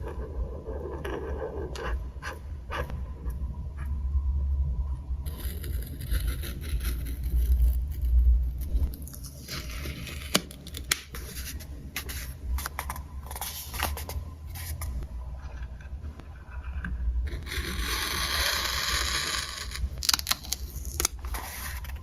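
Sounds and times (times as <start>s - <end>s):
paper rustling and scraping: 7.2s - 15.0s, 17.3s - 22.0s.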